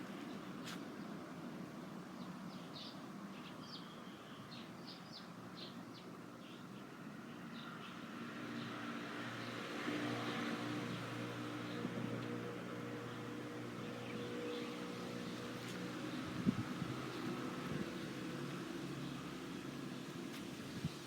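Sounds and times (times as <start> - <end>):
small birds chirping: 2.2 - 8.8.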